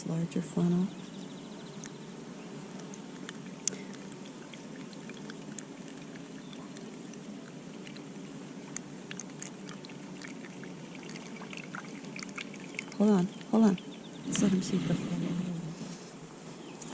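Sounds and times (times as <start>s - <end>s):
honeybee colony humming: 0.0s - 16.9s
small clicks: 2.7s - 4.1s.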